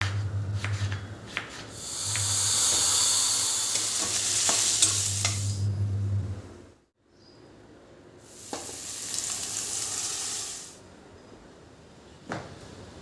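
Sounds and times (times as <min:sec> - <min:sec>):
food sizzling in a pan: 0:01.7 - 0:05.7, 0:08.2 - 0:10.8.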